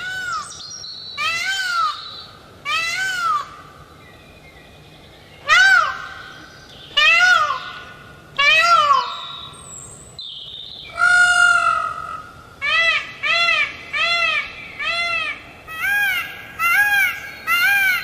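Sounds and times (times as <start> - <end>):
peacock calling: 1.2 - 3.8, 5.4 - 9.6, 10.9 - 18.0.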